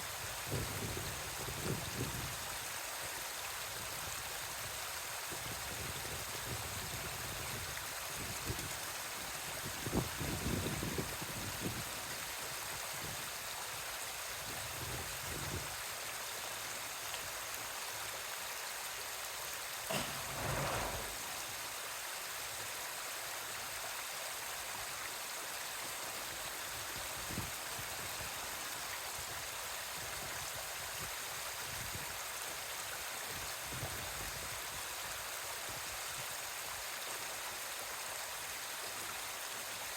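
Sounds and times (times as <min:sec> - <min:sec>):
running water rushing: 0:00.0 - 0:39.9
low bumps: 0:19.9 - 0:21.5.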